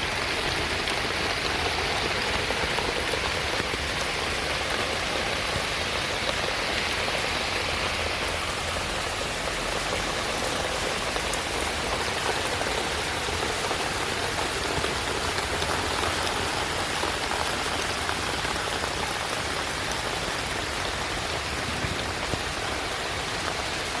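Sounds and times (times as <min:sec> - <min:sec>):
heavy rain on hard surfaces: 0:00.0 - 0:24.0.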